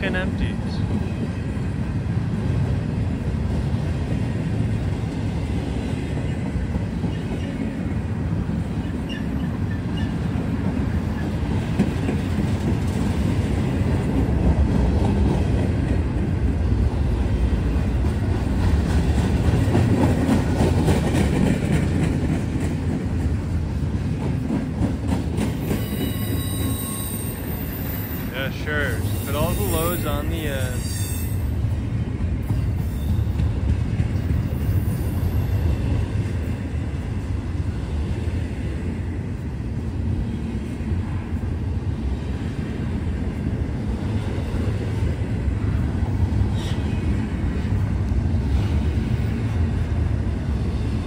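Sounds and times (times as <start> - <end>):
train wheels rumbling on rail: 0.0 - 51.0
high wheel squeal: 25.8 - 31.6.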